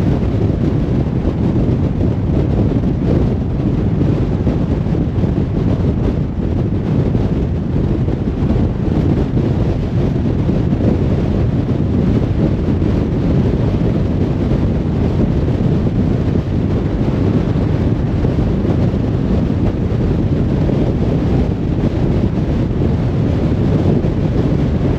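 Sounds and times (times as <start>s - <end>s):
car tyre and wind rumble: 0.0s - 24.9s.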